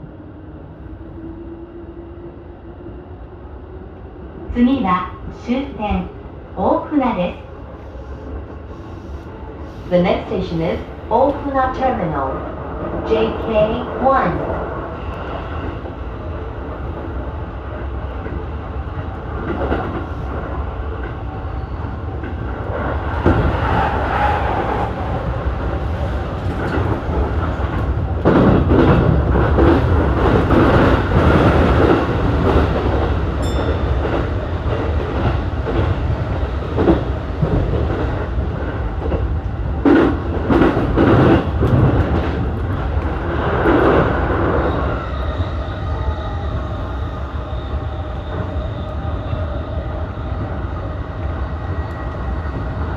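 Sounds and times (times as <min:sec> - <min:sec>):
train wheels rumbling on rails: 0:03.8 - 0:52.9.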